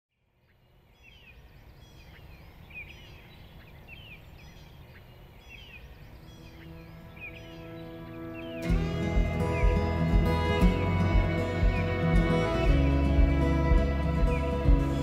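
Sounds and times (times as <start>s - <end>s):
birds chirping: 0.1s - 15.0s
soft sustained music notes: 6.1s - 15.0s
low outdoor rumble: 6.7s - 15.0s.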